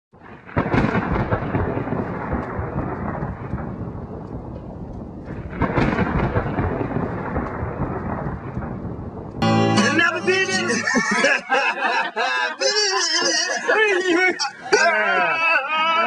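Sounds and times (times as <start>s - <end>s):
loud dense rumbling: 0.8s - 10.8s.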